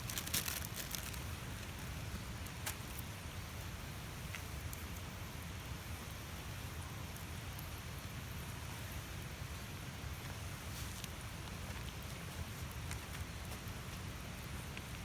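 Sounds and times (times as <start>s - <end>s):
campfire popping: 0.0s - 3.3s
campfire hissing: 0.0s - 15.0s.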